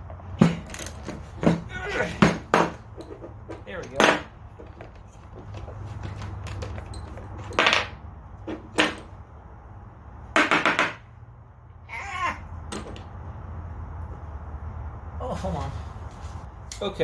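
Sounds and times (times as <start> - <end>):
metal tools knocking on metal: 0.1 - 9.1.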